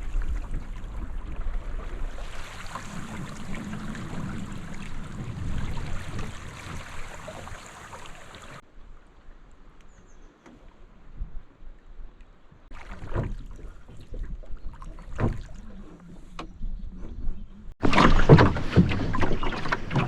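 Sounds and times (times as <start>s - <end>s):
wind buffeting microphone: 0.0s - 8.6s, 16.5s - 20.0s
water rushing along hull: 0.0s - 8.7s, 12.7s - 16.5s, 17.8s - 20.0s.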